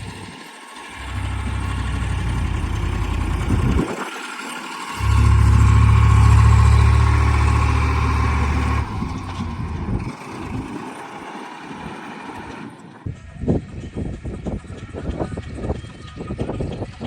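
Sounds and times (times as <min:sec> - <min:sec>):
heavy diesel machinery running: 0:00.0 - 0:13.1.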